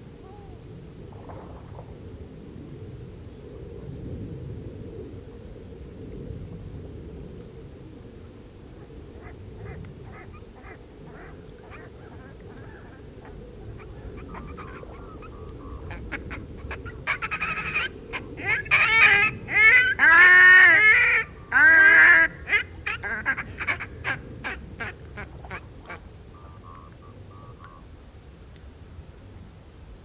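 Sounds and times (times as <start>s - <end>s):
swans calling: 9.2s - 27.8s.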